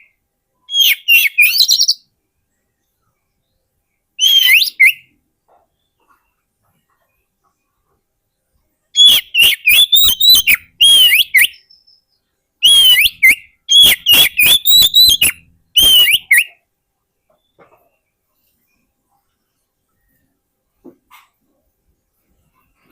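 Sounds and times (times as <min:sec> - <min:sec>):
bird singing whistled notes: 0:00.0 - 0:02.1, 0:04.2 - 0:05.2, 0:09.0 - 0:16.6.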